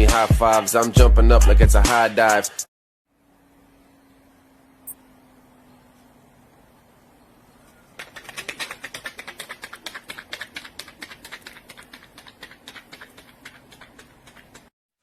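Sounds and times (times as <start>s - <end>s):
fast run of sharp clicks: 7.7s - 14.8s.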